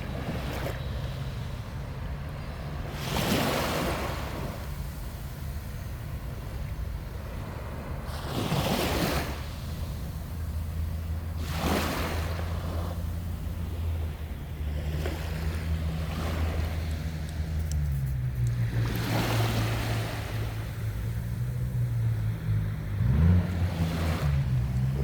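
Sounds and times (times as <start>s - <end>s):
sea waves washing onto shore: 0.0s - 25.0s
low hum: 12.4s - 23.8s.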